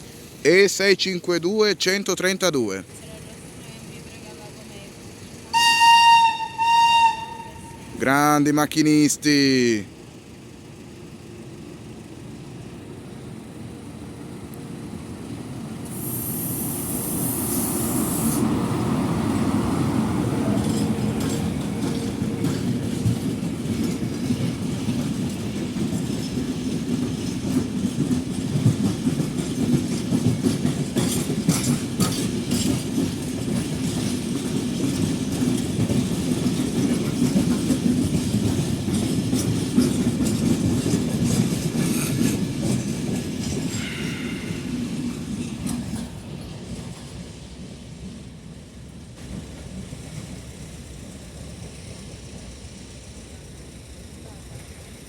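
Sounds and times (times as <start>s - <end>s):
electric locomotive passing: 0.0s - 55.0s
brief hiss: 15.8s - 18.5s
train wheels clattering over rail joints: 20.3s - 47.3s.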